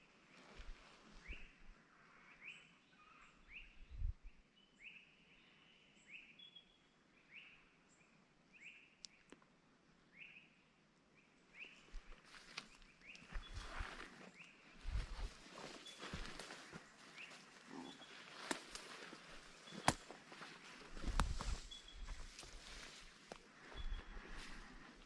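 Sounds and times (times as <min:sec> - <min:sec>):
faint bird calling: 0:12.6 - 0:24.8.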